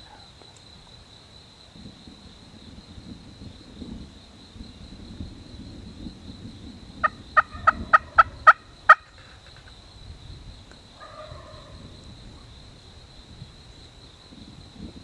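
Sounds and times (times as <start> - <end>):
turkey yelping: 7.1 - 9.1.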